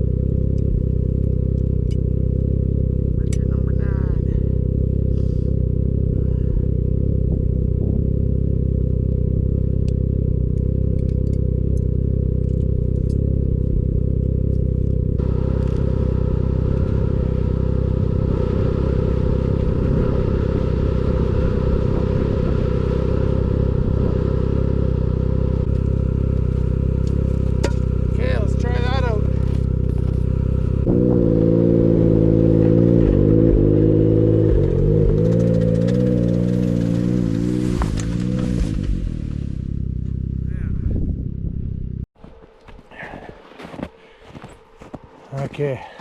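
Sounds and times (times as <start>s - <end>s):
snowmobile engine running: 0.0s - 46.0s.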